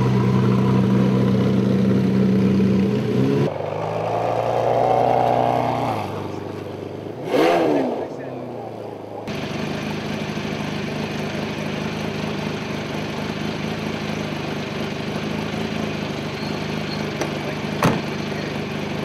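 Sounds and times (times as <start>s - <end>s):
car engine idling: 0.0s - 3.4s, 8.7s - 19.0s.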